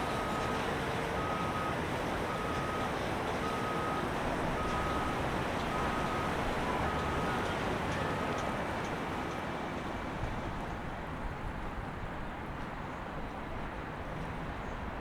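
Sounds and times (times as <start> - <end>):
reversing alarm beeping: 0.0 - 0.6, 1.2 - 8.4.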